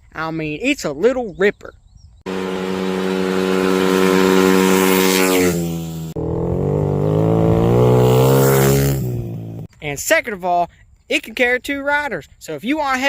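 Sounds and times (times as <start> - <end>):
dirt bike engine revving: 2.3 - 9.7.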